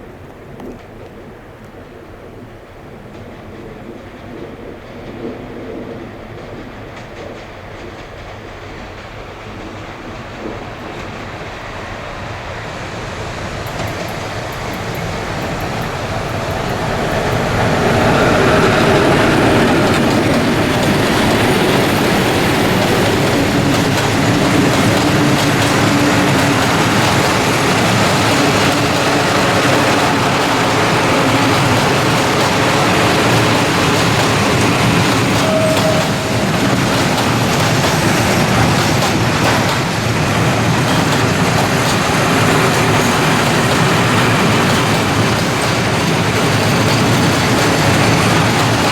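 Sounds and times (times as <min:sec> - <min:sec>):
freight train wheels clattering: 0:03.1 - 0:48.9
train wheels squealing: 0:09.8 - 0:48.9.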